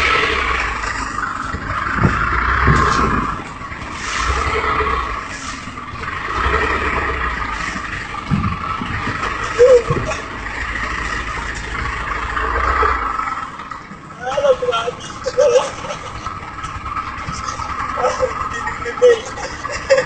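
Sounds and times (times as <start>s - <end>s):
car engine: 0.0s - 20.0s
road noise: 0.0s - 20.0s.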